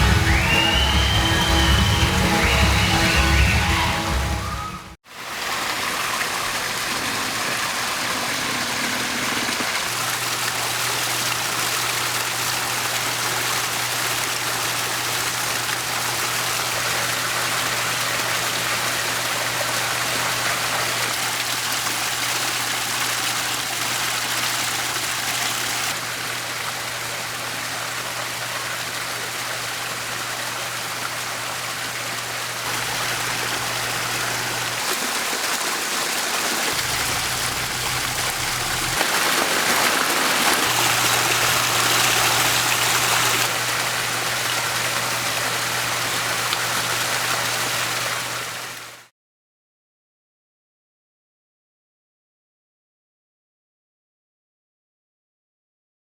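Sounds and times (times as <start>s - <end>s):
water cascading over boulders: 5.1s - 49.1s
low steady hum: 36.8s - 39.0s.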